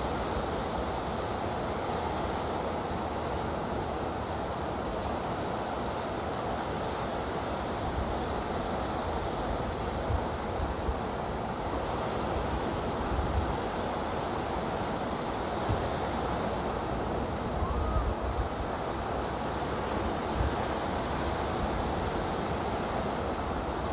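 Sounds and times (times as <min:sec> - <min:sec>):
ocean surf washing onto beach: 0:00.0 - 0:23.9.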